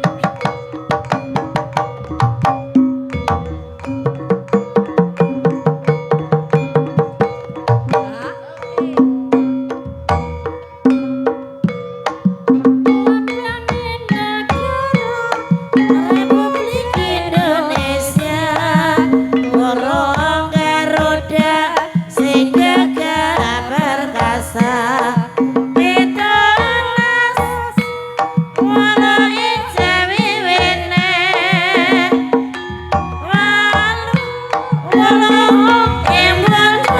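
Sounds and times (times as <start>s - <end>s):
hand drum strokes: 0.0s - 36.9s
person singing long wavering notes: 7.8s - 9.7s, 13.0s - 27.8s, 28.6s - 36.9s.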